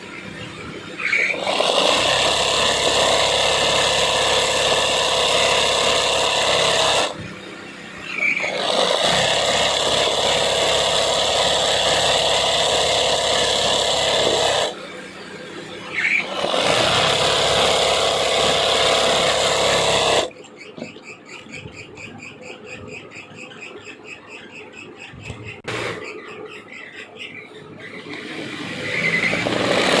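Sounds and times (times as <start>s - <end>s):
sewing machine stitching: 1.1s - 7.2s, 8.3s - 14.8s, 16.1s - 20.3s, 28.0s - 30.0s.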